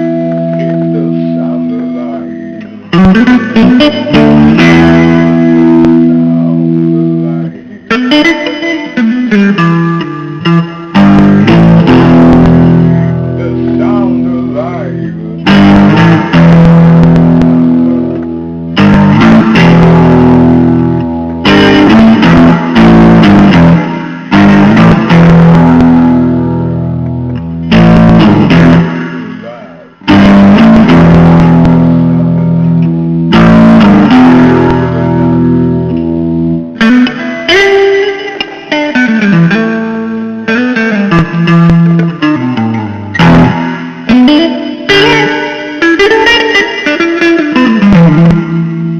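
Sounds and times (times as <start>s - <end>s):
blues guitar music: 0.0s - 48.9s.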